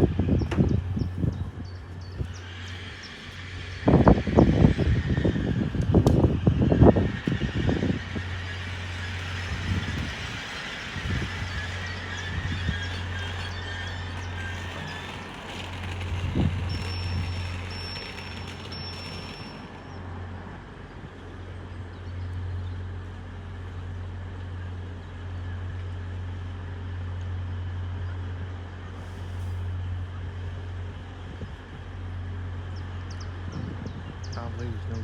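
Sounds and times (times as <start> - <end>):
train running: 0.0 - 21.6.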